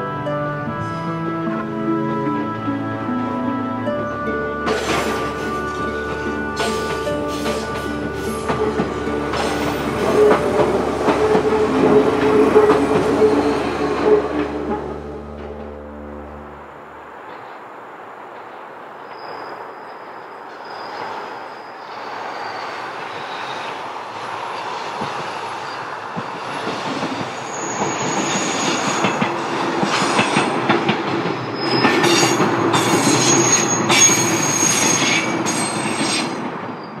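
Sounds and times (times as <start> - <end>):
electric train passing: 0.0 - 37.0
clacks over rail joints: 4.6 - 13.4, 24.5 - 37.0
wheel squeals on rails: 6.6 - 14.9, 19.0 - 23.9, 24.5 - 30.6, 31.3 - 37.0.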